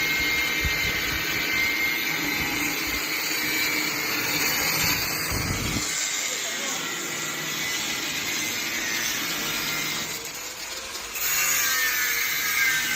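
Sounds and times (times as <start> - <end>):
air compressor running: 4.7 - 6.0.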